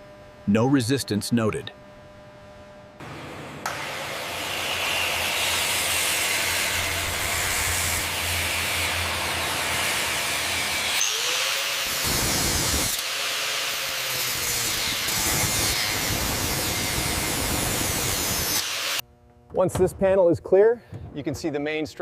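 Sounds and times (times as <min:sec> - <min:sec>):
power tool hissing: 0:03.7 - 0:19.0.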